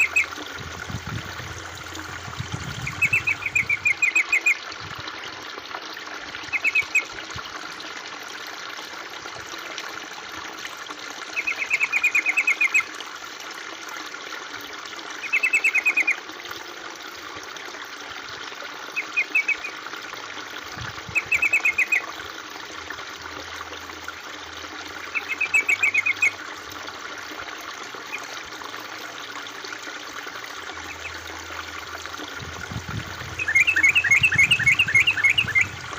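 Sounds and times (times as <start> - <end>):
water trickling: 0.0 - 35.9
quick repeated bird notes: 2.8 - 4.6, 33.3 - 35.9.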